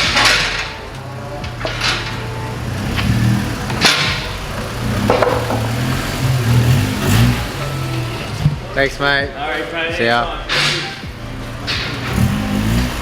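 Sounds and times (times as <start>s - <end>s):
car engine idling: 0.0s - 13.0s
sharp knocks and clinks: 5.0s - 5.9s.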